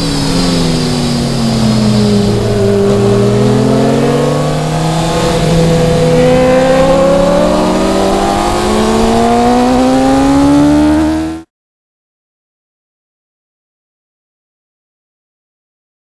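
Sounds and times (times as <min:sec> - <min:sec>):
racing motorcycle engine accelerating: 0:00.0 - 0:11.5.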